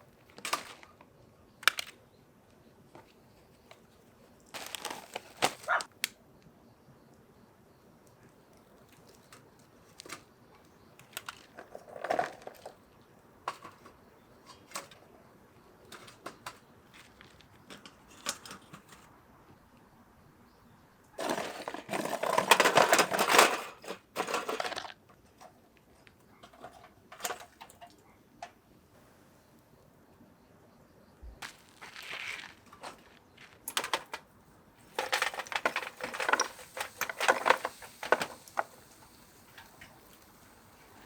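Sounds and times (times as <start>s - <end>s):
rustling and crunching: 2.9s - 6.0s, 21.2s - 27.9s, 31.3s - 41.0s.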